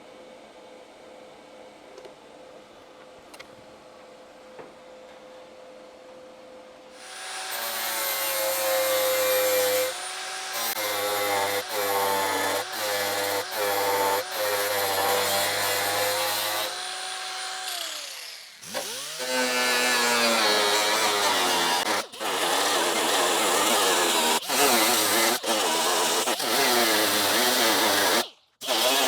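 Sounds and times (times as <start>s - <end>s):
electric grinder on sheet metal: 7.0s - 29.0s.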